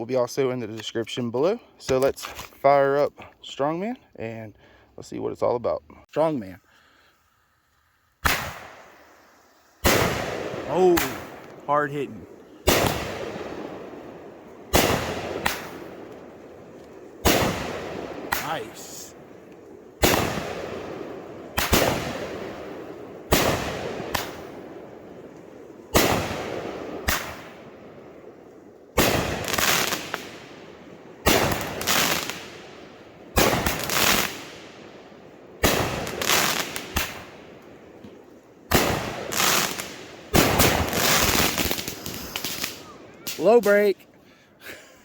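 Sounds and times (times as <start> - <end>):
fireworks bangs with crackle: 8.2 - 43.9.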